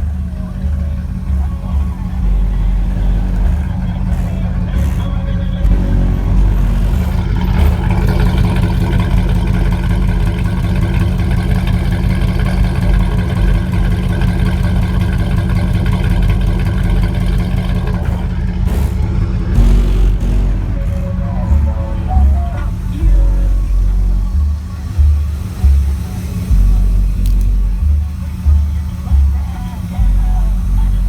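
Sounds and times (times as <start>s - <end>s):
engine running steadily: 0.0s - 31.0s.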